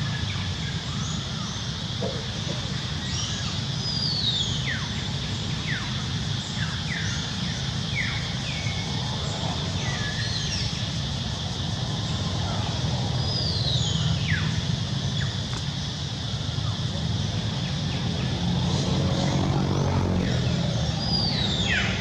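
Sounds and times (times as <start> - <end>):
birds calling: 0.9 - 4.6, 16.9 - 22.0.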